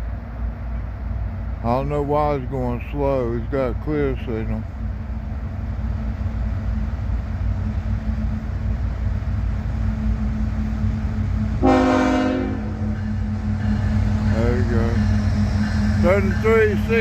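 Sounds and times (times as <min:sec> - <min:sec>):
diesel locomotives rumbling: 0:00.0 - 0:17.0
locomotive air horn blast: 0:11.6 - 0:12.9.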